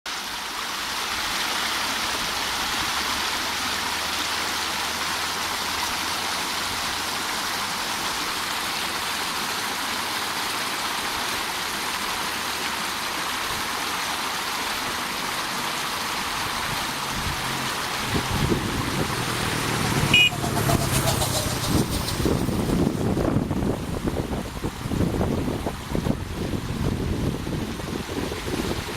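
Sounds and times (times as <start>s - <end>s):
rushing water: 0.1s - 28.9s.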